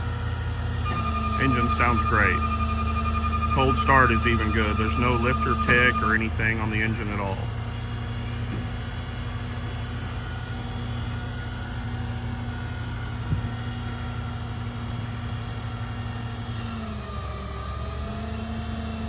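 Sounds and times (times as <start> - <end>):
truck engine idling: 0.0 - 11.9.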